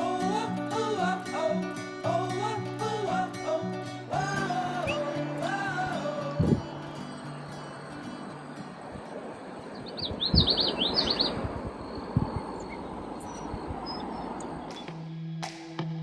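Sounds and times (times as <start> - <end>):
steady rushing noise: 0.0 - 15.0
bird chirping: 9.6 - 15.3.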